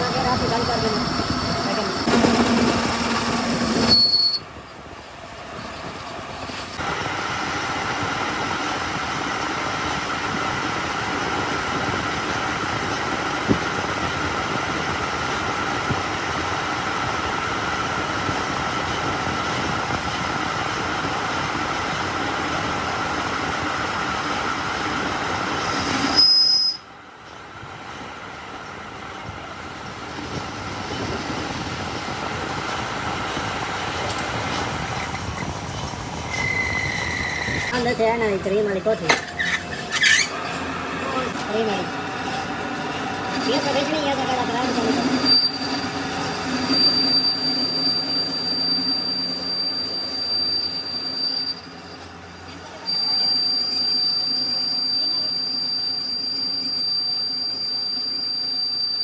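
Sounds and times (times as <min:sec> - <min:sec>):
workshop machinery running: 0:00.0 - 0:03.9, 0:33.9 - 0:48.5.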